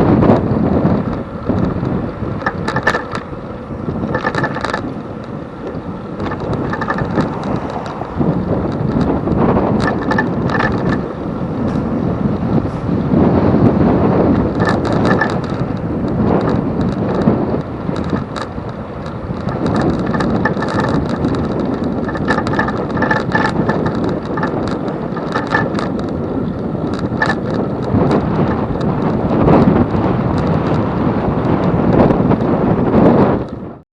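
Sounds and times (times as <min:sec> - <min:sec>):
wind buffeting microphone: 0:00.0 - 0:33.8
clicks and rattles: 0:00.2 - 0:33.8.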